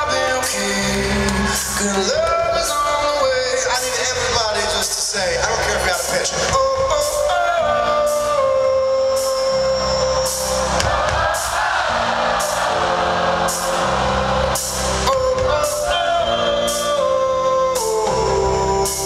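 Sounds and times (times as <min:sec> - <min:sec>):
person singing: 0:00.0 - 0:10.9, 0:14.5 - 0:19.0
steady drum beat: 0:04.8 - 0:08.6, 0:10.2 - 0:18.2.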